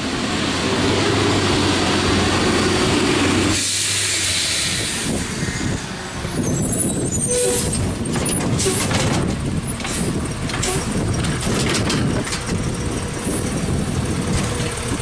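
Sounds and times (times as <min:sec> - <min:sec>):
garbage truck engine droning: 0:00.0 - 0:15.0
air hissing: 0:03.5 - 0:05.6
rumbling: 0:05.0 - 0:15.0.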